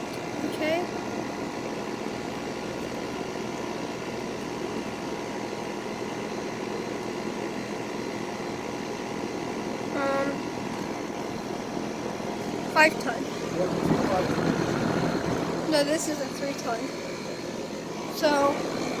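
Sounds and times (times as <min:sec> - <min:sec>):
air conditioning units whirring: 0:00.0 - 0:19.0
constant tonal hum: 0:09.5 - 0:19.0.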